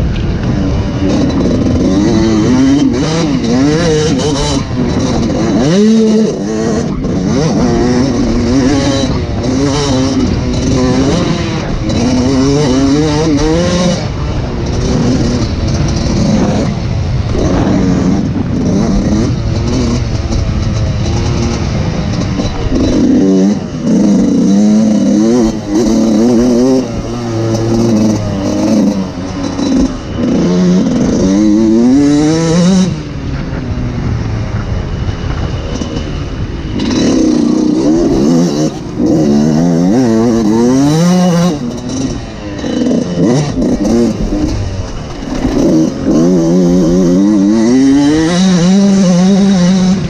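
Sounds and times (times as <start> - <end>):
motocross engine revving: 0.0 - 50.0.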